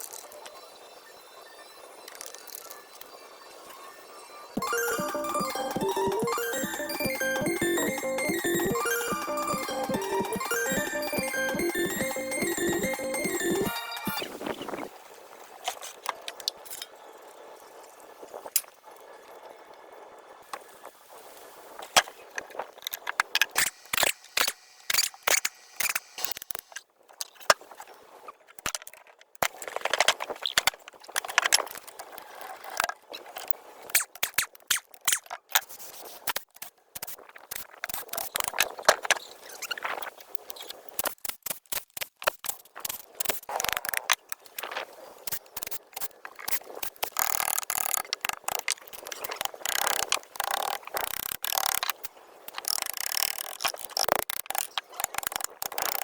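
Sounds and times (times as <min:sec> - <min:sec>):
tools clicking and tapping: 0:52.5 - 0:56.0.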